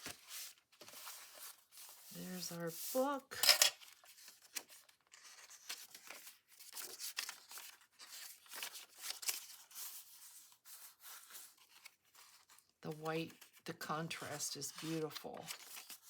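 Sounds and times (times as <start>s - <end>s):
paper pages rustling: 0.0s - 16.0s.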